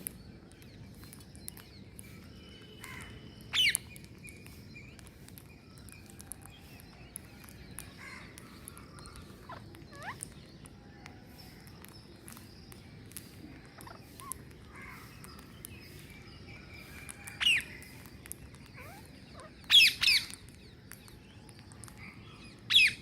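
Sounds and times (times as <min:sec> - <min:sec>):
faint chirps: 0:00.0 - 0:23.0
outdoor background: 0:00.0 - 0:23.0
parrots screeching: 0:09.1 - 0:10.3, 0:18.7 - 0:20.4.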